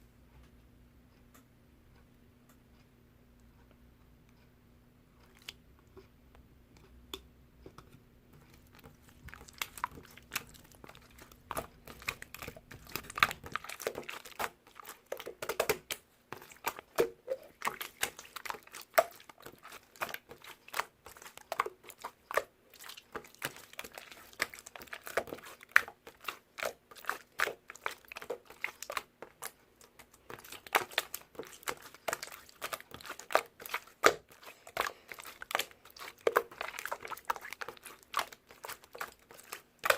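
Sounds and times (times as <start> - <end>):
slime squished by hand: 8.4 - 39.9.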